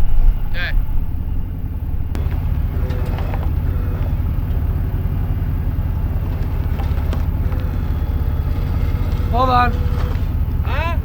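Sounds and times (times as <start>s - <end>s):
truck engine rumbling: 0.0s - 11.0s
faint clicks: 2.1s - 10.6s.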